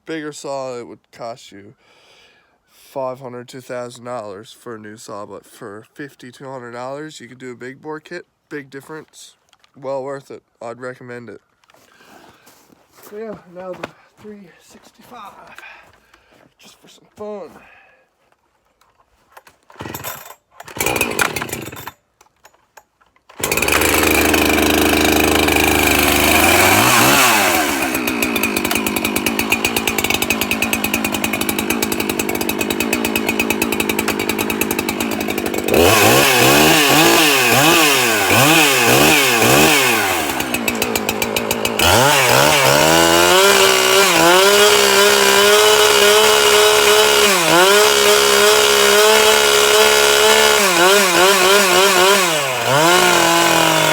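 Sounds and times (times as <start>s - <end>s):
chainsaw starting: 19.6s - 22.0s, 23.2s - 53.9s
chainsaw revving: 19.8s - 22.0s, 23.3s - 53.9s.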